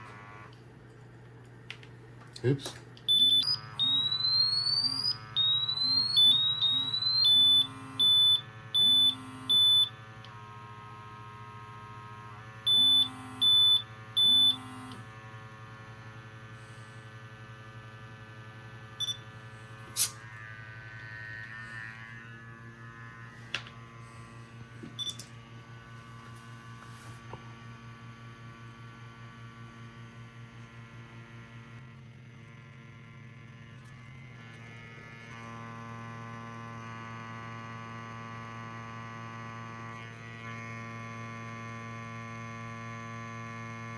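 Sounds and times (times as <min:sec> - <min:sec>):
pump humming: 0:02.4 - 0:27.1
gas monitor alarm beeps and chirps: 0:03.1 - 0:10.0, 0:12.7 - 0:15.0, 0:19.0 - 0:19.4, 0:24.9 - 0:25.3.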